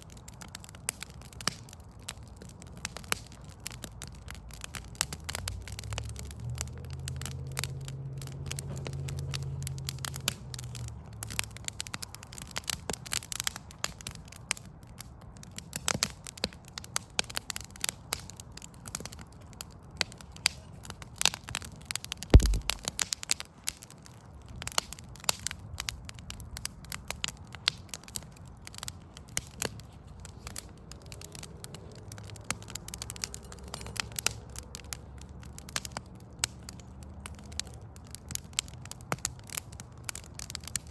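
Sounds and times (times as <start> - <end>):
wood fire crackling: 0.0 - 40.9
low hum: 22.4 - 22.9.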